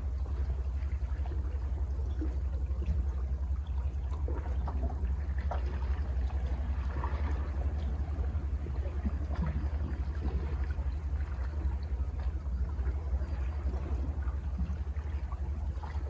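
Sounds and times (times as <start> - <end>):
low rumble of surf: 0.0 - 16.0
small water splashes: 0.0 - 16.0.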